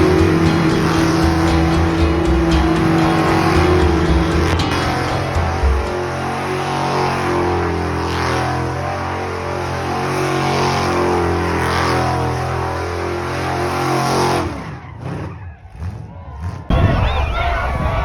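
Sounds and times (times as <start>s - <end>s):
truck engine running: 0.0s - 8.0s.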